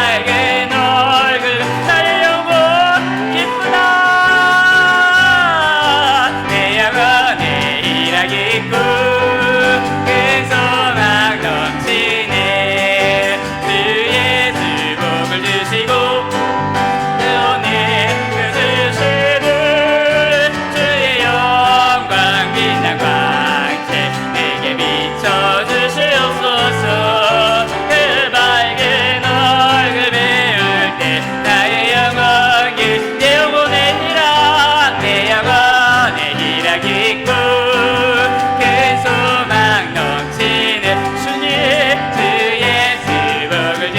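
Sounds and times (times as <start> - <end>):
bass: 0.0 - 43.9
piano: 0.0 - 43.9
worship band playing live: 0.0 - 43.9.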